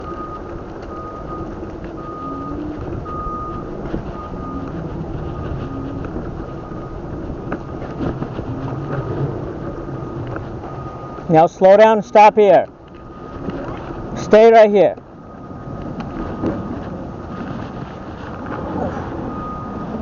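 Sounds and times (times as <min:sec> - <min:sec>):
rush of tyres and wind: 0:00.0 - 0:20.0.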